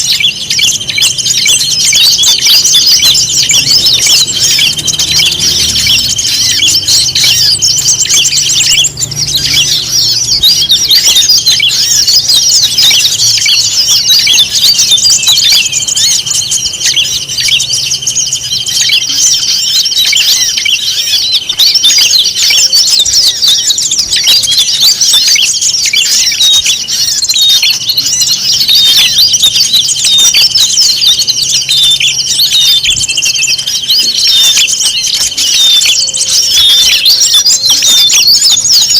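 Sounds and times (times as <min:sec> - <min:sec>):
songbirds chirping and twittering: 0:00.0 - 0:38.9
steady high tone: 0:01.0 - 0:14.6.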